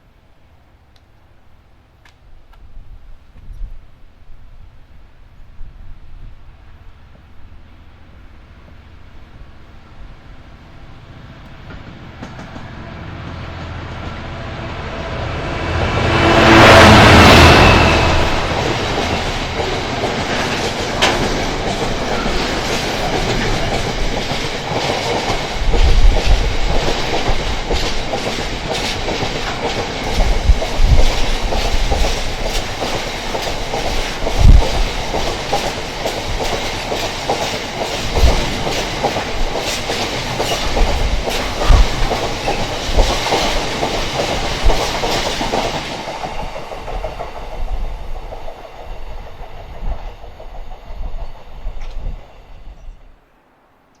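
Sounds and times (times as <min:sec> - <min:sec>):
train wagons rumbling past: 0:06.5 - 0:53.3
wheels thumping over rail joints: 0:18.2 - 0:48.5.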